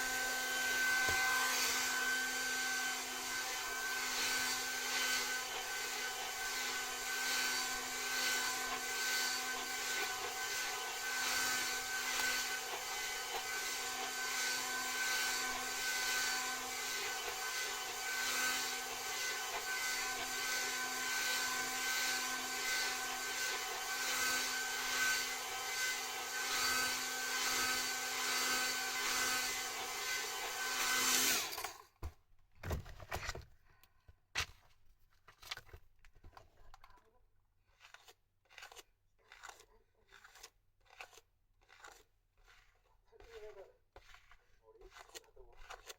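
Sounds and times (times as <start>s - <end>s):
hair dryer blowing: 0.0s - 31.7s.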